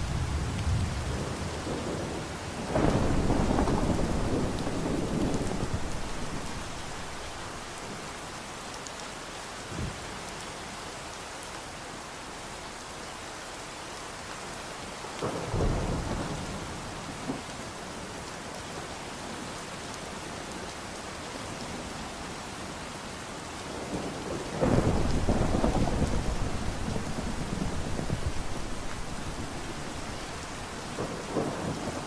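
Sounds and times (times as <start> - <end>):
thunder rumbling: 0.0 - 8.3, 24.6 - 32.0
steady rain: 0.0 - 32.0.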